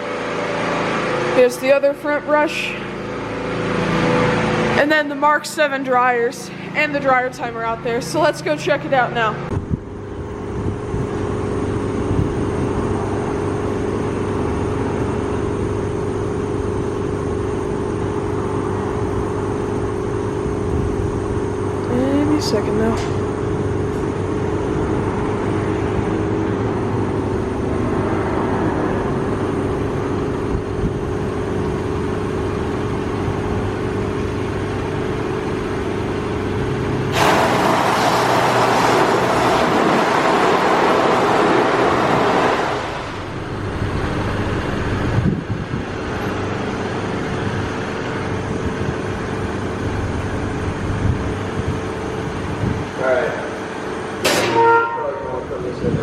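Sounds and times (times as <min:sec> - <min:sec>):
car wash machine humming: 0:00.0 - 0:56.0
water spray hitting car: 0:37.1 - 0:42.9.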